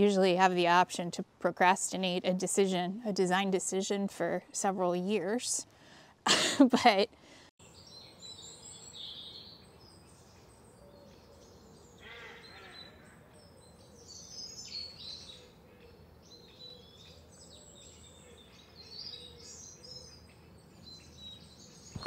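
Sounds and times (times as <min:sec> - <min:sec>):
songbirds chirping: 0:07.6 - 0:22.0.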